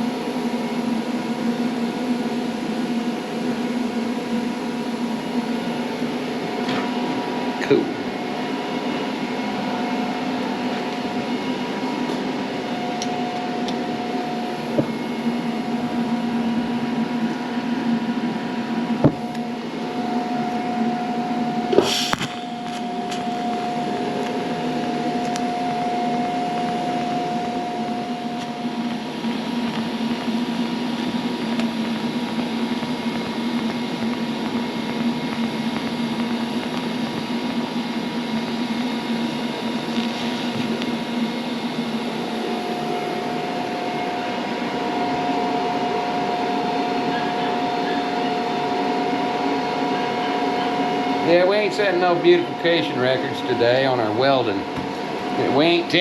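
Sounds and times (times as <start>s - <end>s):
welder electrical hum: 0.0s - 56.0s
welding arc tone: 18.9s - 56.0s.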